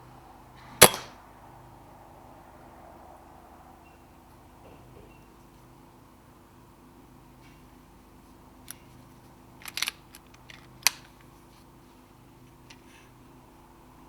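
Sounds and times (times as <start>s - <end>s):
low steady hum: 0.0s - 14.0s
air rifle mechanical clicks: 0.8s - 1.1s, 8.6s - 8.9s, 9.6s - 11.4s.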